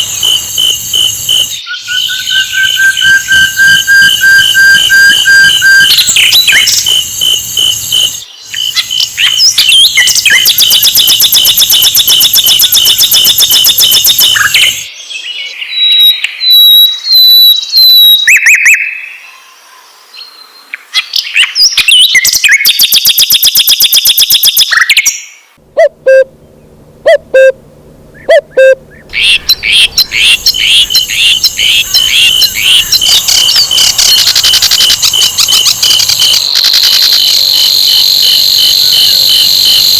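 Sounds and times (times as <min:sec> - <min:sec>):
bird singing chirps and trills: 0:00.0 - 0:19.0, 0:28.2 - 0:36.8.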